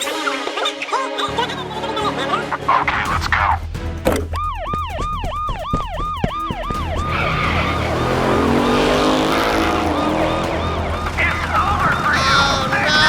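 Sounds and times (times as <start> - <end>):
siren yelping: 4.2 - 13.0
vehicle engine: 5.8 - 13.0.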